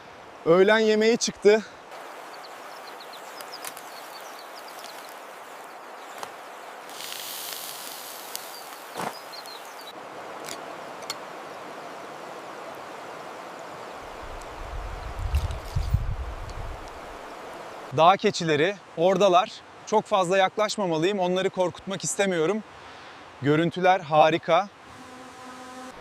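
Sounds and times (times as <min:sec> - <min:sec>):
river rushing: 0:00.0 - 0:14.6, 0:16.7 - 0:18.0
brief high hiss: 0:06.9 - 0:09.7.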